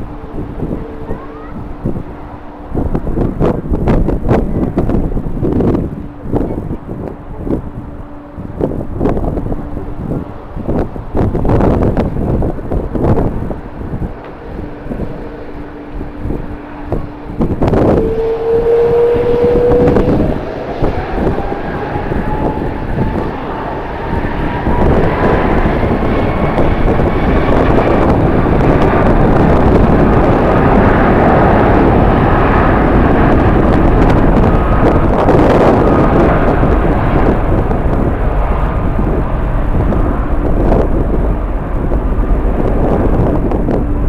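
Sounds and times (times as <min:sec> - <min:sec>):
jet engines whining and roaring: 0:00.0 - 0:44.0.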